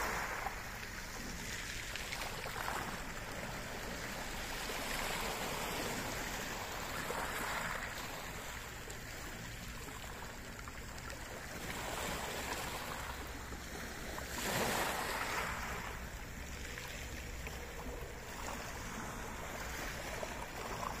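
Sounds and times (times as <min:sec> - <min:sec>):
water rushing: 0:00.0 - 0:21.0.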